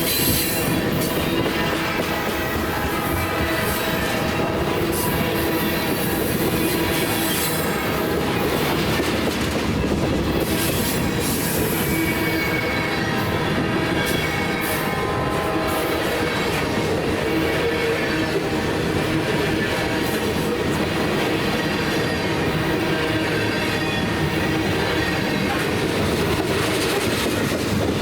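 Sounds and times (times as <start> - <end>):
train cars rumbling past: 0.0 - 28.0
wheels squealing on rails: 0.0 - 28.0.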